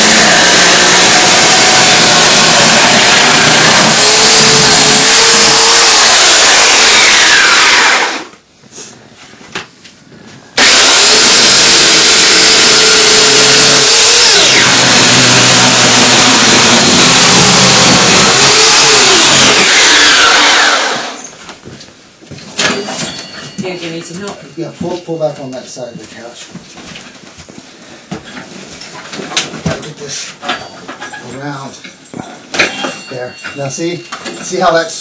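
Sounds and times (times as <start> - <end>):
chainsaw cutting: 0.0 - 8.3, 10.6 - 21.2.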